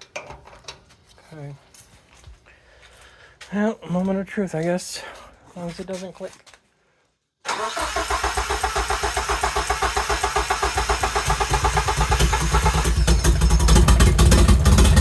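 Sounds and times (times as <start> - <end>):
car engine cranking on starter: 7.4 - 15.0
car engine running: 10.5 - 15.0.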